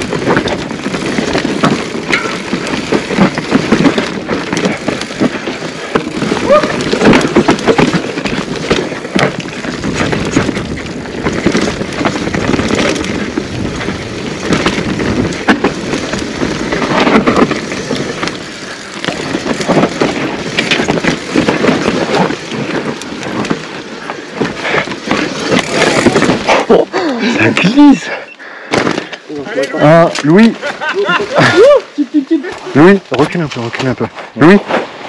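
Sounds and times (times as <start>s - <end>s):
bike rattling and knocking: 0.0s - 27.9s
tyres rolling over dirt: 0.0s - 35.0s
wind rushing over microphone: 8.8s - 26.5s.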